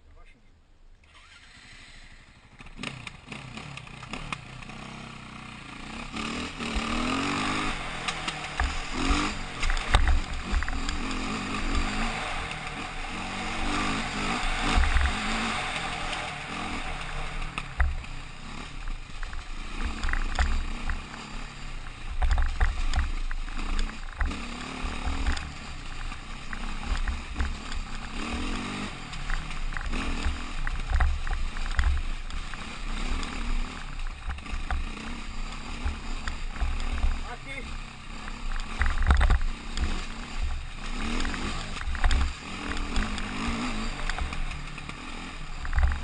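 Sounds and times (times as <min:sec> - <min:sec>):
road noise: 0:00.0 - 0:46.0
motorcycle engine: 0:01.0 - 0:46.0
small clicks: 0:21.8 - 0:24.4, 0:25.1 - 0:28.2, 0:41.2 - 0:45.0, 0:45.6 - 0:46.0.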